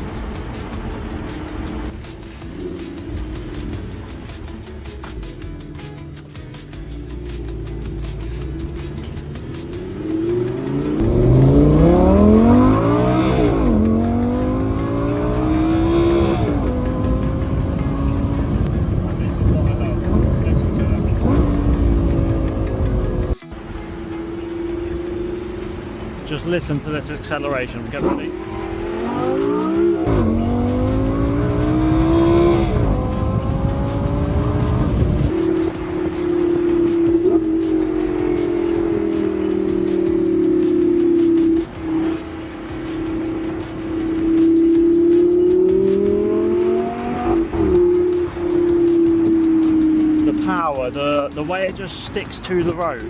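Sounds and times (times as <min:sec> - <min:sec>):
sports car engine accelerating: 0:00.0 - 0:53.0.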